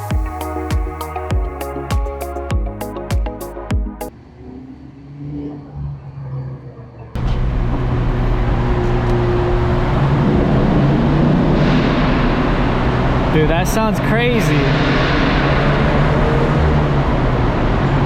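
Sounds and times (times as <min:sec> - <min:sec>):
car engine and exhaust running: 0:07.2 - 0:18.0.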